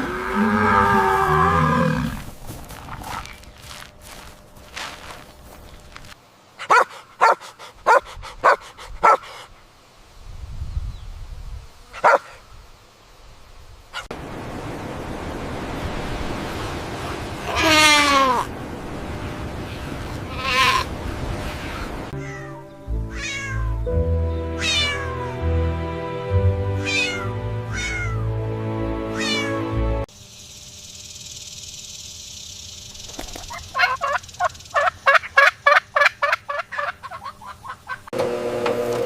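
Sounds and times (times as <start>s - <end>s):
falling animal calls: 0.0s - 3.4s, 17.4s - 18.5s, 20.2s - 20.9s, 24.6s - 25.4s, 26.8s - 28.3s, 29.1s - 29.6s
background music with held notes: 22.2s - 30.1s.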